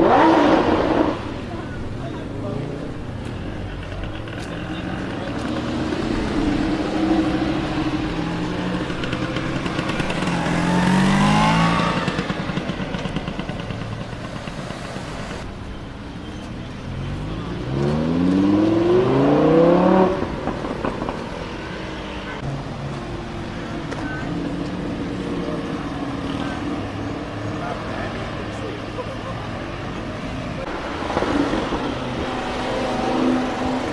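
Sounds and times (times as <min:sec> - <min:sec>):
exhaust crackles: 0:00.0 - 0:33.9
sports car engine revving: 0:00.0 - 0:33.9.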